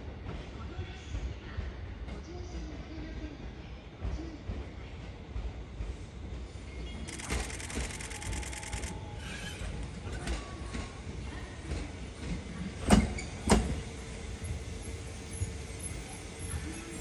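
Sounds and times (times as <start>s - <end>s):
electric train rolling past: 5.1s - 17.0s
fast rattle: 7.1s - 8.9s.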